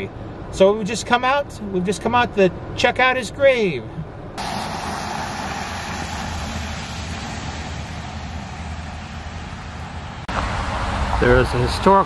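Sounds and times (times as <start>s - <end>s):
wet-road traffic: 4.1s - 12.0s
low rumble: 4.2s - 11.2s
rain hiss: 4.4s - 12.0s.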